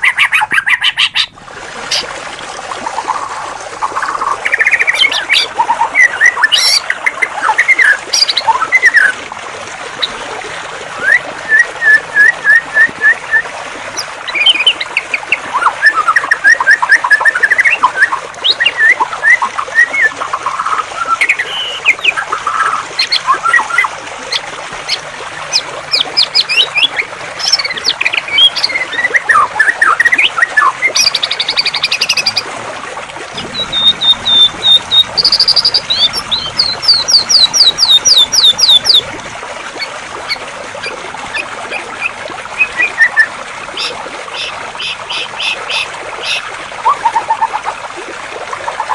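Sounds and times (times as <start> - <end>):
flowing water rushing: 0.0 - 48.9
songbirds singing: 3.9 - 9.2, 14.0 - 23.9, 33.3 - 39.2.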